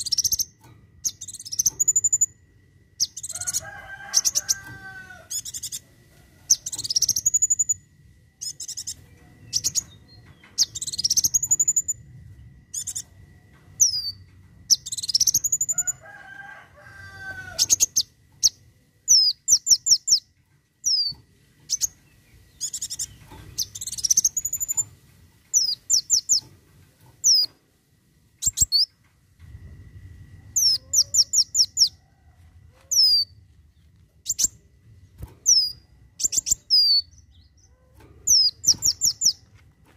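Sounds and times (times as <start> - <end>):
sunbird singing sharp high chirps: 8.4 - 10.0, 12.7 - 13.0, 20.9 - 24.9, 30.6 - 32.0.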